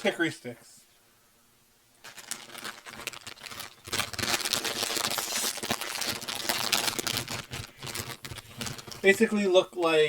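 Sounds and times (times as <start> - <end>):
snack bag crinkling and tearing: 2.0 - 9.4.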